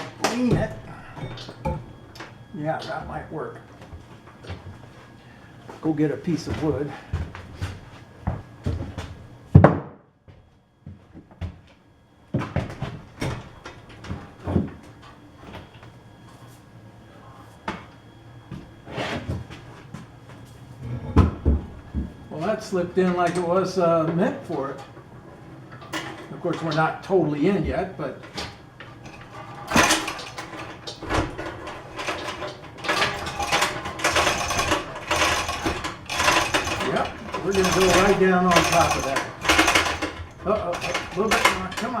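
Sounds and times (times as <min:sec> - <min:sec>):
wood and metal parts knocking: 0:00.0 - 0:02.3, 0:28.2 - 0:42.0.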